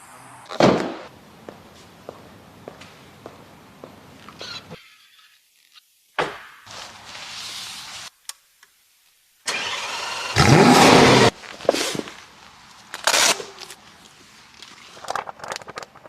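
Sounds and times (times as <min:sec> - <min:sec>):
car engine starting and revving: 0:09.5 - 0:11.3.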